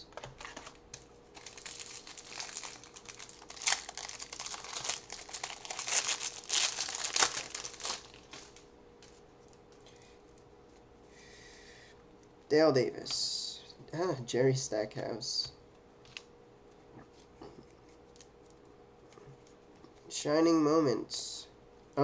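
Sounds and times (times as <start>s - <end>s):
card pack wrapper crinkling: 0.1s - 8.6s.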